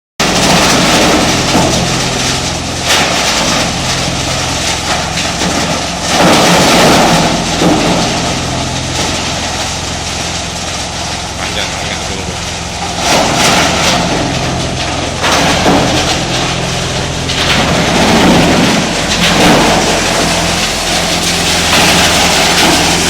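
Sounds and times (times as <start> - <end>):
shredding machine running: 0.2 - 23.0.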